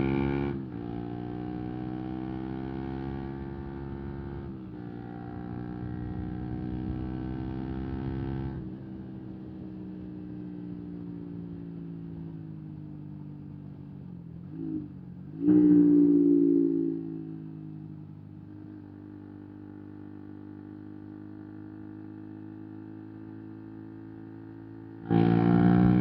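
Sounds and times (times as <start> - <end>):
motorcycle engine revving: 0.0 - 9.1, 14.4 - 26.0.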